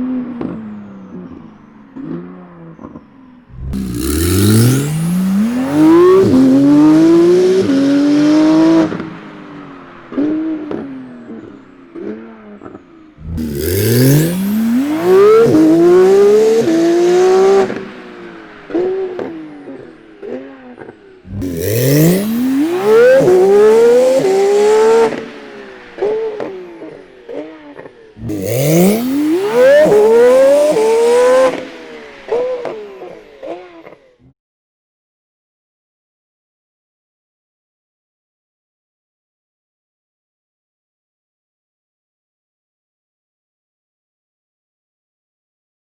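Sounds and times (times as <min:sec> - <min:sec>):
car engine accelerating hard: 0:00.0 - 0:34.1.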